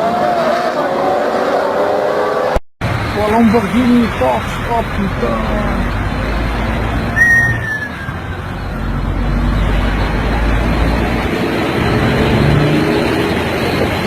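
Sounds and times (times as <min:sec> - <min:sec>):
road traffic noise: 0:00.0 - 0:14.0
high squeal sliding down: 0:07.1 - 0:09.6.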